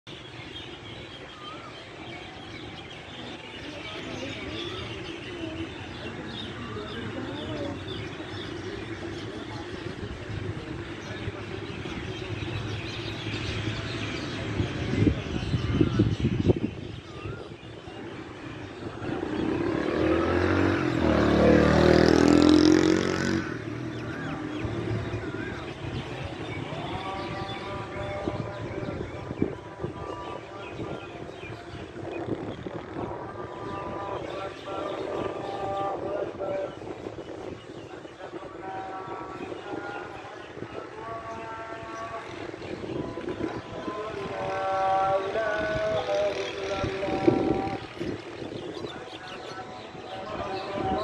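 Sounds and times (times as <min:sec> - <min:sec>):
birds chirping and twittering: 0:00.0 - 0:51.0
lower wavering bird calls: 0:00.1 - 0:51.0
vehicle driving past: 0:18.8 - 0:28.6.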